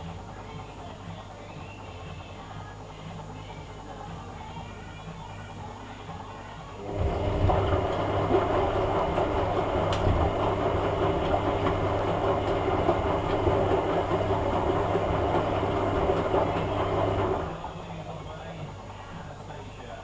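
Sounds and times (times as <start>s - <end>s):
washing machine running: 0.0s - 20.0s.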